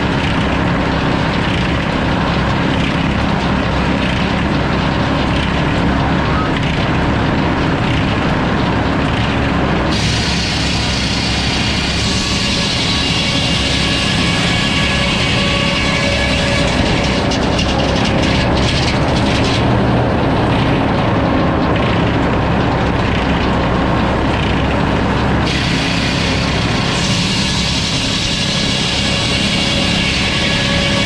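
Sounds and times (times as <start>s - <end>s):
engine running: 0.0s - 31.0s
saw cutting through log: 9.1s - 21.0s, 25.4s - 31.0s.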